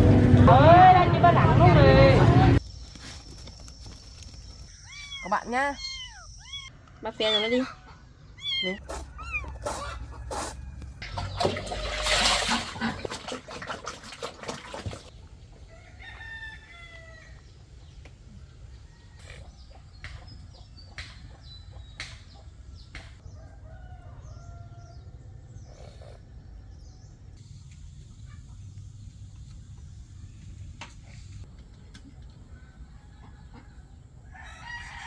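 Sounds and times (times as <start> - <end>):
rooster crowing: 4.9 - 11.3, 15.7 - 17.4, 23.2 - 25.2, 32.5 - 35.0.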